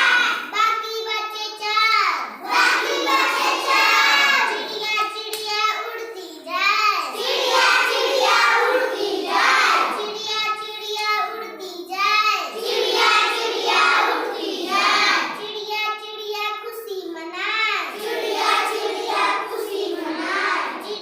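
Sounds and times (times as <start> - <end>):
child singing a rhyme: 0.0 - 21.0.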